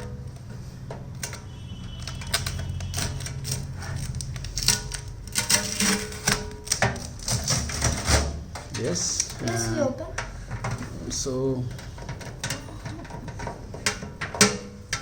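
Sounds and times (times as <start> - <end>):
adhesive tape crackling and clicking: 0.2 - 10.8.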